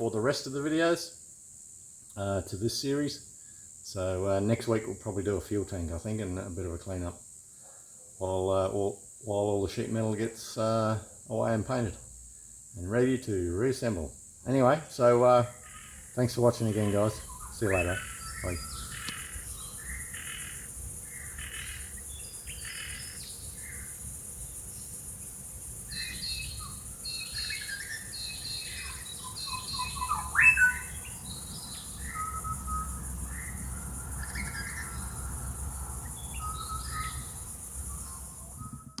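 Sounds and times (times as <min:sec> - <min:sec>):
high-pitched insect hum: 0:00.0 - 0:39.0
birds chirping and calling: 0:15.2 - 0:24.0, 0:25.9 - 0:39.0
loud rising bird call: 0:25.9 - 0:35.2.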